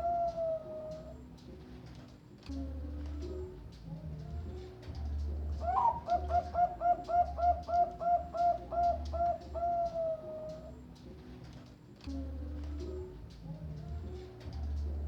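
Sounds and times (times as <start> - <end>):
dove cooing: 0.0 - 1.4, 2.5 - 3.6, 4.3 - 10.9.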